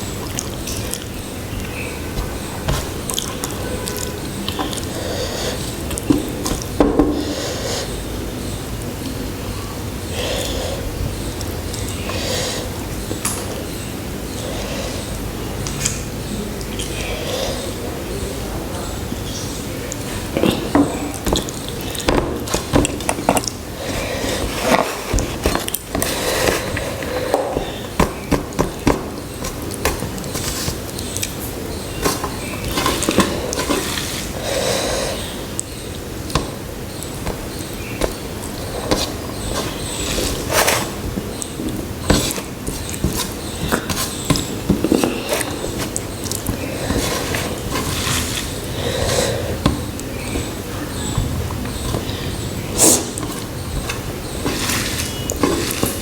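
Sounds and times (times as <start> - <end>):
breaths through the nose: 46.6 - 50.3, 52.7 - 53.2.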